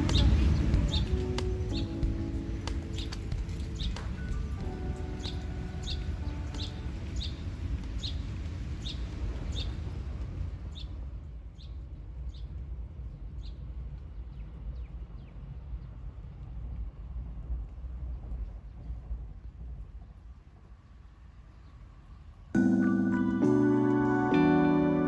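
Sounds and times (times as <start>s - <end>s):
music: 0.0s - 8.2s, 22.6s - 25.0s
steady low rumble: 0.0s - 25.0s.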